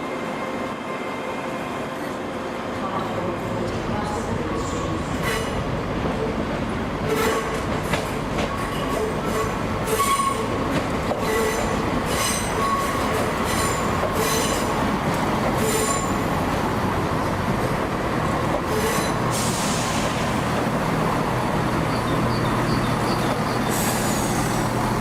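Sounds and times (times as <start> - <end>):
train running rumble: 2.9 - 25.0
train wheels squealing: 8.5 - 10.6, 11.2 - 14.7, 15.6 - 16.3, 21.9 - 24.6.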